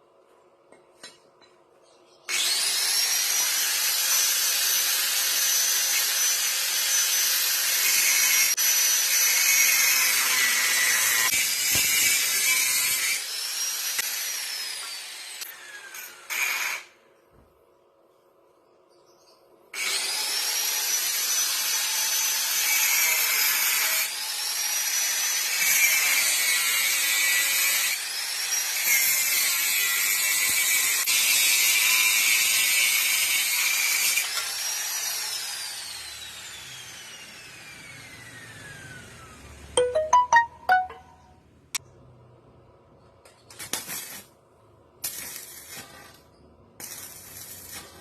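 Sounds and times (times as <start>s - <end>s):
angle grinder grinding metal: 2.3s - 16.9s.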